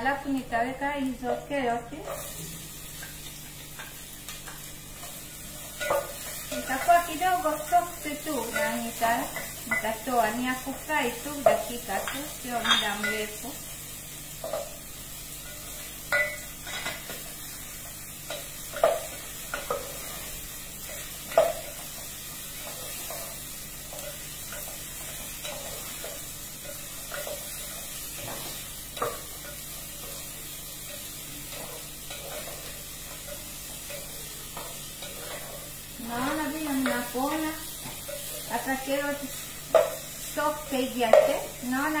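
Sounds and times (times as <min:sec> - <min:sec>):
carrots sizzling in oil: 0:00.0 - 0:42.0
spoon knocking and scraping pot: 0:03.8 - 0:07.0, 0:11.4 - 0:13.3, 0:15.4 - 0:17.2, 0:20.8 - 0:21.9, 0:39.7 - 0:40.0.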